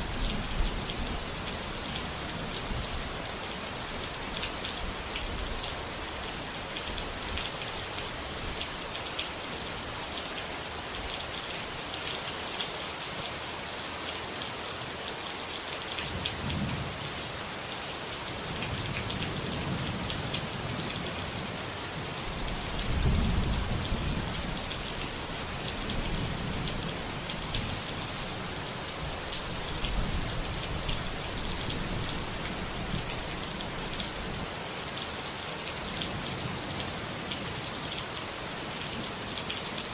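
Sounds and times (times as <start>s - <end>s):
steady rain falling: 0.0s - 39.9s
thunder rumbling: 22.4s - 24.4s.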